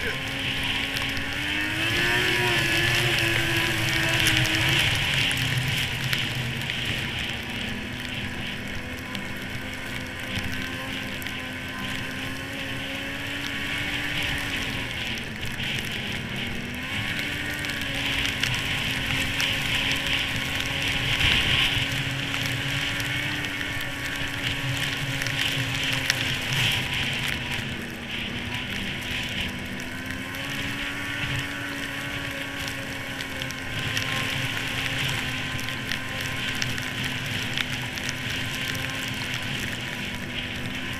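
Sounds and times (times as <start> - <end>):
hiss of wind and track: 0.0 - 40.9
snowmobile engine running: 0.0 - 40.9.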